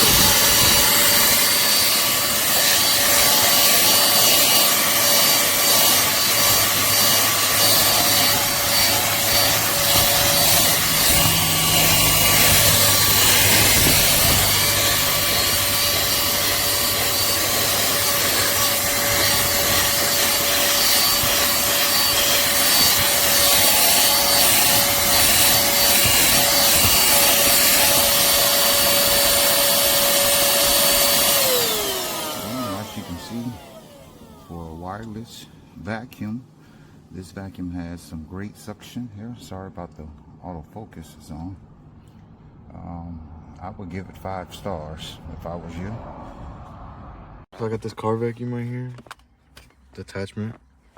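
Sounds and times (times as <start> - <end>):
nozzle scraping carpet: 0.0 - 34.3
handheld vacuum whining: 0.0 - 35.2.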